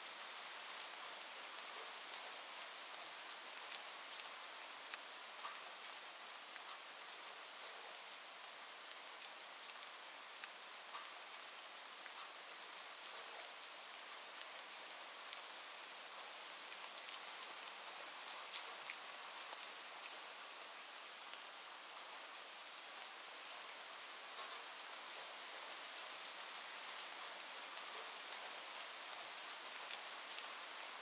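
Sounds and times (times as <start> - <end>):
steady rain: 0.0 - 31.0
raindrop ticks: 4.9 - 5.7, 9.7 - 11.2, 24.4 - 24.7.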